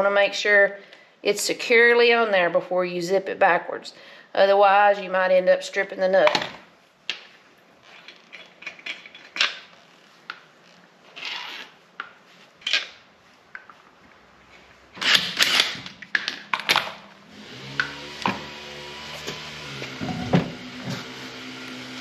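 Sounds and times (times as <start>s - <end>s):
tools and metal parts clicking: 7.8s - 9.7s.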